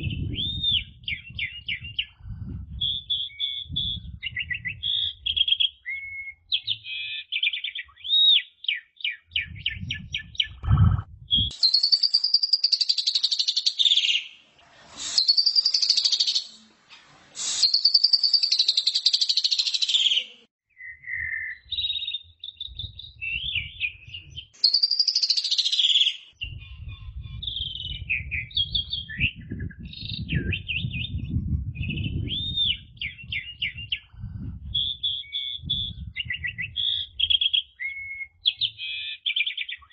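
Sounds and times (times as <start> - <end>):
starling singing with trills: 0.0 - 14.4, 15.0 - 16.7, 17.4 - 39.9
low rumble: 9.4 - 11.5.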